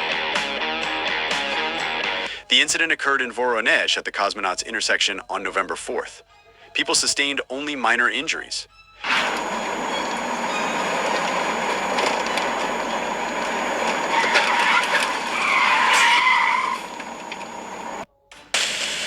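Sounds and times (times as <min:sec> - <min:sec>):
car tyres squealing: 0:08.9 - 0:18.1
road traffic noise: 0:09.0 - 0:19.0.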